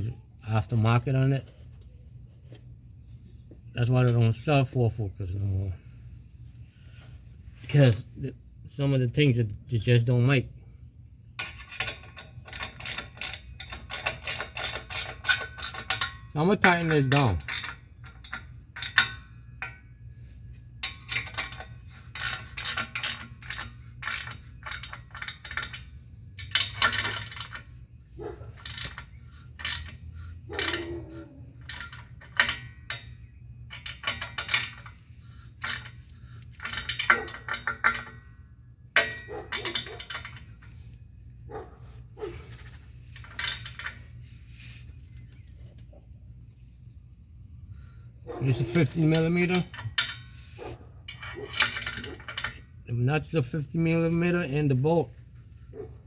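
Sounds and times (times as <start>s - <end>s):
metal clinks: 11.2s - 46.3s, 47.4s - 56.0s
ratchet wrench clicking: 11.4s - 19.9s, 20.8s - 40.8s, 42.5s - 44.1s, 48.6s - 54.7s.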